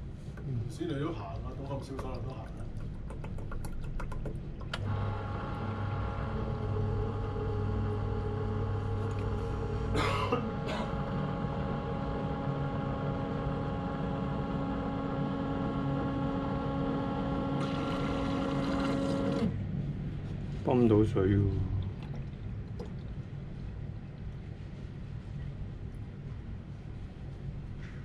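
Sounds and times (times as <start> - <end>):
pump humming and whining: 4.4 - 25.2.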